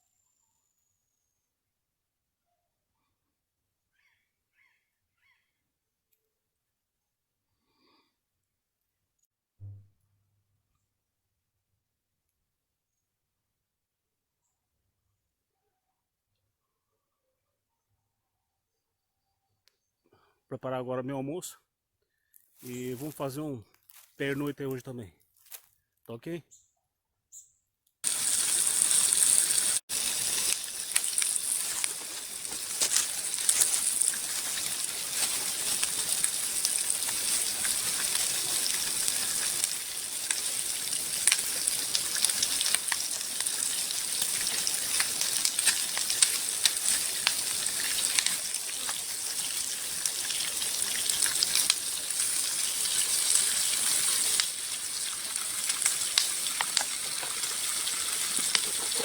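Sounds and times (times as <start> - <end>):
stream running over rocks: 28.0 - 59.0.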